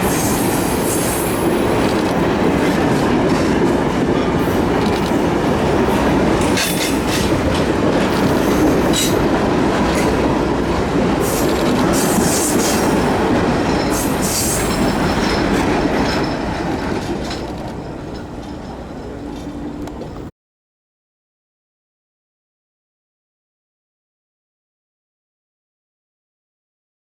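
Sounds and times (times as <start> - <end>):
train wheels rumbling on rail: 0.0 - 20.3.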